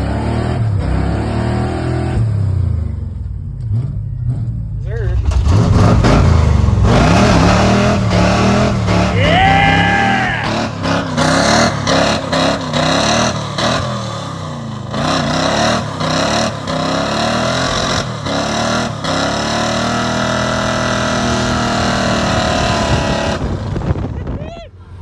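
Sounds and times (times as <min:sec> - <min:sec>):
engine revving hard: 0:04.8 - 0:24.1.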